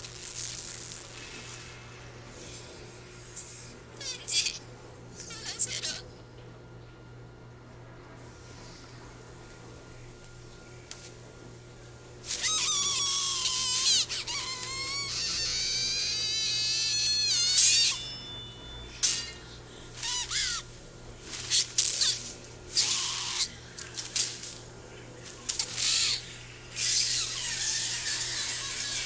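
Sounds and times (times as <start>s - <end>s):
high-pitched screeching: 12.3s - 20.7s, 25.6s - 29.0s.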